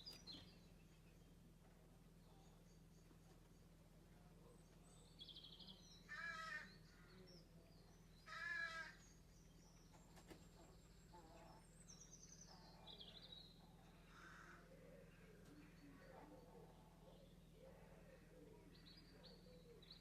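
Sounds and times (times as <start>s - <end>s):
small birds chirping: 0.0s - 20.0s
caw-like bird calls: 6.1s - 7.1s, 8.3s - 9.0s, 14.0s - 14.8s.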